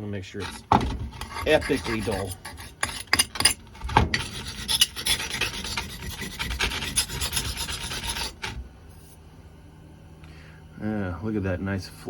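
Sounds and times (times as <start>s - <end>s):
knife scraping on brick: 0.3s - 8.6s.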